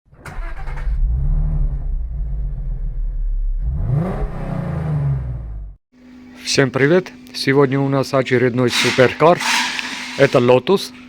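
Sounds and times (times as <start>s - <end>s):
sports car engine revving: 3.6s - 5.6s.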